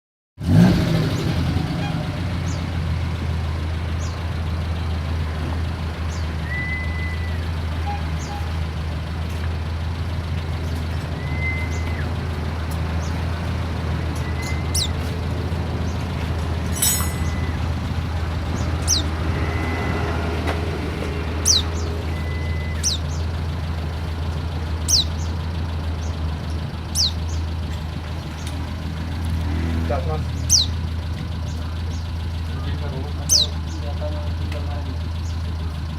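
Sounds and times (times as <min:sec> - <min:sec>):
bird call notes and trill: 0:06.0 - 0:08.9, 0:10.0 - 0:13.3, 0:14.0 - 0:15.2, 0:16.7 - 0:20.5, 0:21.2 - 0:27.6, 0:30.3 - 0:32.4, 0:33.1 - 0:33.8.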